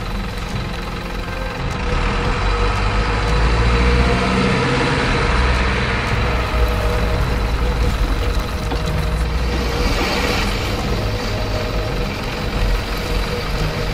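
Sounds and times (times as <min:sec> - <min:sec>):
truck engine running: 0:00.0 - 0:13.9.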